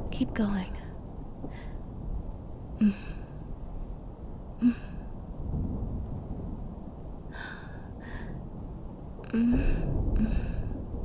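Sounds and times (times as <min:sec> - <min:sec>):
low ambient rumble: 0:00.0 - 0:11.0
woman sighing: 0:02.8 - 0:03.3, 0:04.6 - 0:05.1, 0:07.3 - 0:08.4, 0:09.3 - 0:10.8.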